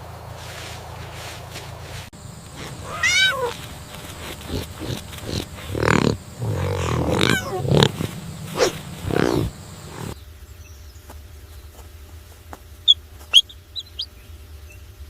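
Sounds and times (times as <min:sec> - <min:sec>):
rough harsh animal calls: 0:02.2 - 0:10.2
animal call falling in pitch: 0:02.5 - 0:10.2.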